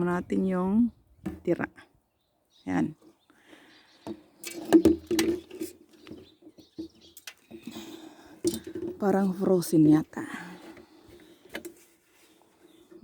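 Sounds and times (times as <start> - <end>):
birds chirping faintly: 0.0 - 13.0
container knocks and handling: 4.1 - 7.8, 8.4 - 9.2.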